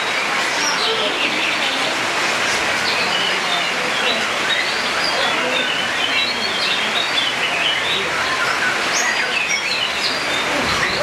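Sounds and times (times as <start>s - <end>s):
heavy rain hissing: 10.3s - 11.0s.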